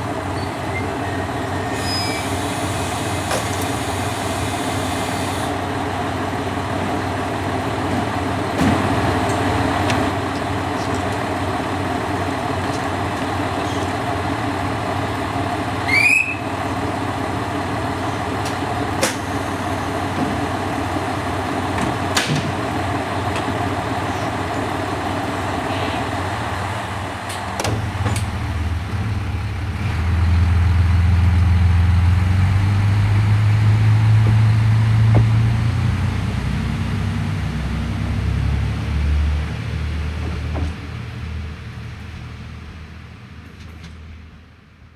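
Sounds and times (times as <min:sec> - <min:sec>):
diesel railcar engine humming: 0:00.0 - 0:44.9
sharp clunks: 0:34.1 - 0:35.7.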